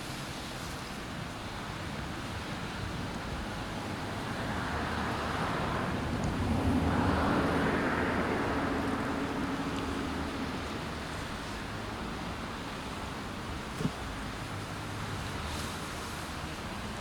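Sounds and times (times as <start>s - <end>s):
motor vehicle passing: 4.3s - 11.6s.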